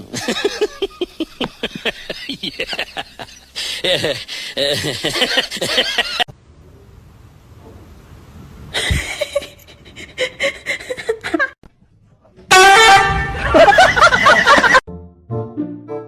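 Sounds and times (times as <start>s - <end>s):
person laughing: 0.0s - 6.3s, 8.8s - 11.6s, 13.4s - 14.8s.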